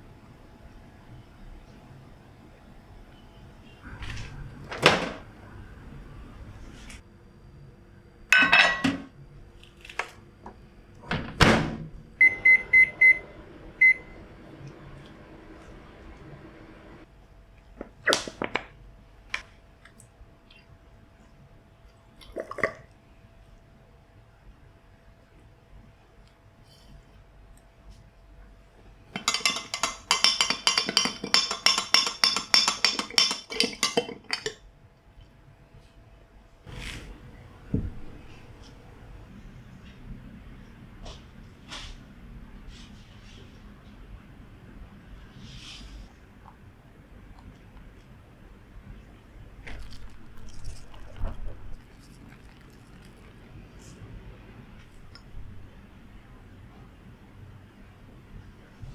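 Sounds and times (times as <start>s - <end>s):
microwave door shutting: 4.0s - 5.4s, 11.0s - 17.0s
utensil clinking on a dish: 8.4s - 9.0s, 29.2s - 34.6s
keypad beeps: 12.2s - 13.2s, 13.8s - 14.1s.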